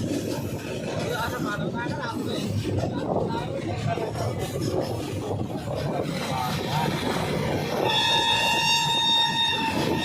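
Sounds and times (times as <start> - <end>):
train rumbling: 0.0 - 10.0
train horn: 7.7 - 10.0.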